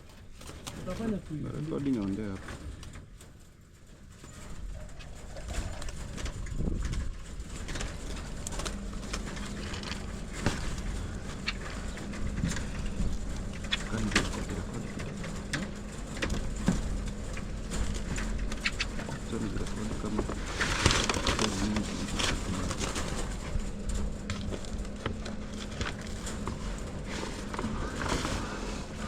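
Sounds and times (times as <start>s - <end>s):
farm birds calling: 7.5s - 29.0s.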